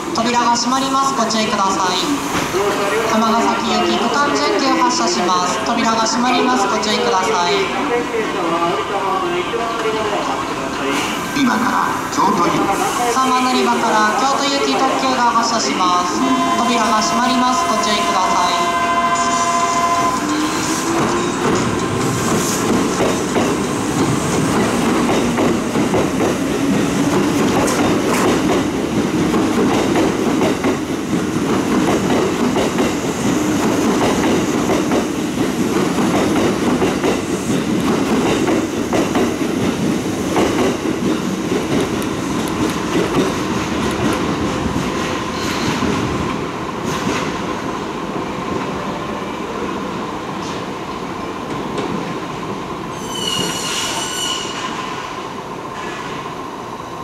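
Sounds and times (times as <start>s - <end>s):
electric train wheels clacking: 13.5s - 47.6s
high squeal: 52.9s - 55.0s.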